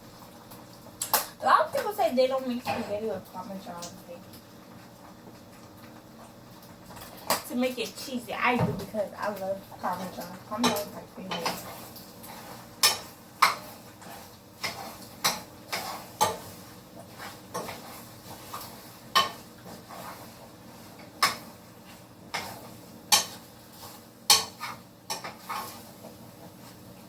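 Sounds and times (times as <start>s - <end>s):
utensil clanking against pot: 8.5s - 11.8s, 12.8s - 16.5s, 17.2s - 20.2s, 22.3s - 23.4s, 24.3s - 25.8s.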